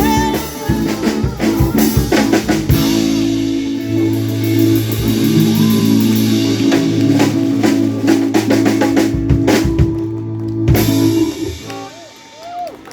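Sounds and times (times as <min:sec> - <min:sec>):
drum hits: 0:00.0 - 0:10.1
rock band holding chord: 0:00.0 - 0:12.9.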